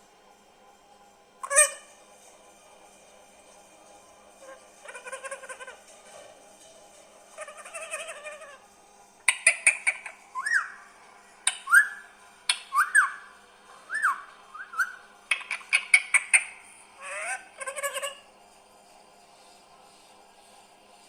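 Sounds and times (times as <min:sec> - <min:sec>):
soft warbling chatter: 0:00.0 - 0:21.0
parakeet squawks and whistles: 0:01.4 - 0:02.0, 0:04.4 - 0:05.8, 0:07.3 - 0:08.6, 0:09.2 - 0:18.3.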